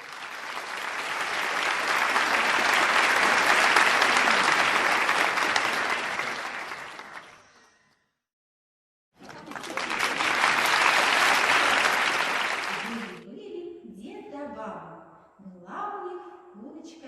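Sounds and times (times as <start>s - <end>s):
audience applauding: 0.0s - 7.6s, 9.2s - 13.2s.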